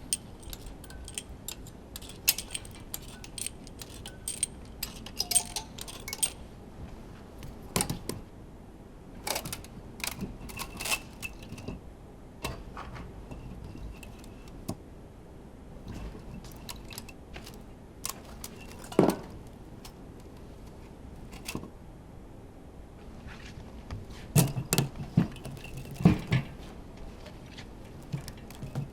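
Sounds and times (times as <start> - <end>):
metal parts clicking and clinking: 0.0 - 6.5, 9.2 - 11.8, 13.3 - 14.7, 15.8 - 21.7, 24.4 - 26.4.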